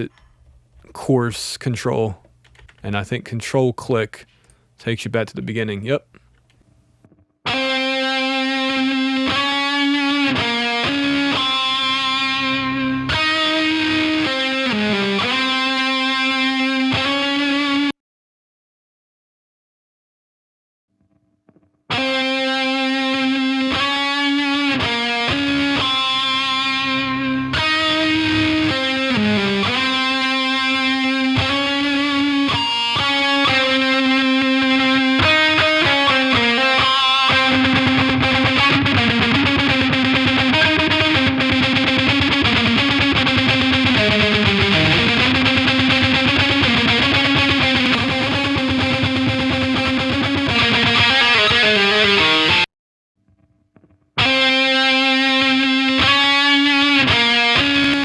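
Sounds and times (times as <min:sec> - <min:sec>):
distorted electric guitar: 0:07.5 - 0:17.9, 0:21.9 - 0:52.7, 0:53.8 - 0:58.0.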